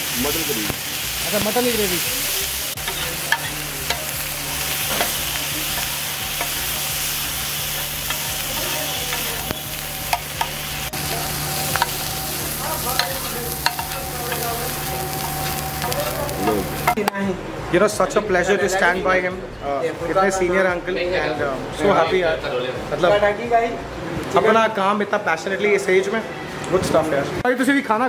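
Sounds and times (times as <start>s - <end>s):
meat sizzling on griddle: 0.0s - 17.0s.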